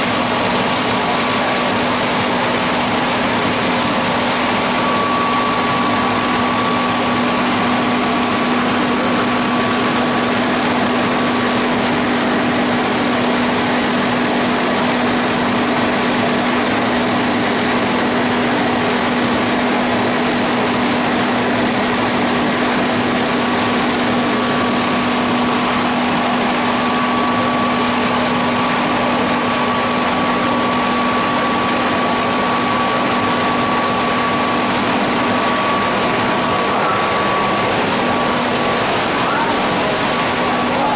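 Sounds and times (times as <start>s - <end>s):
lathe humming: 0.0s - 40.9s
constant rushing noise: 23.9s - 40.9s.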